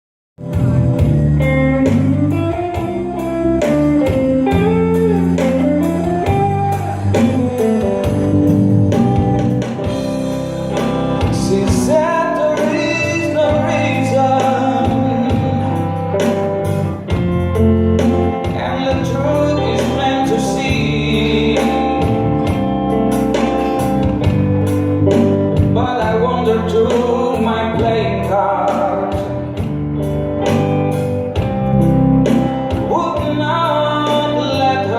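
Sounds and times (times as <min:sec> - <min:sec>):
steady beat: 0:00.4 - 0:34.7
guitar: 0:00.4 - 0:34.9
person singing: 0:10.1 - 0:17.2, 0:18.0 - 0:24.2, 0:25.1 - 0:29.7, 0:32.2 - 0:34.9.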